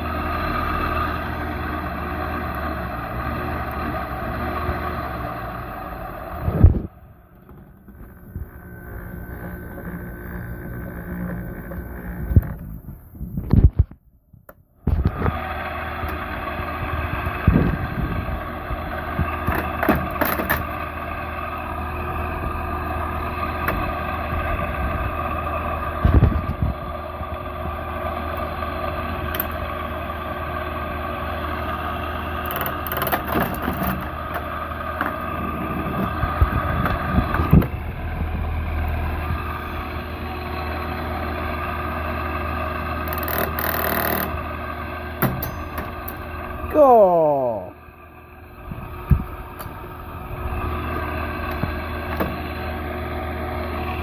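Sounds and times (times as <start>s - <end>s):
air conditioner humming: 45.2s - 47.8s.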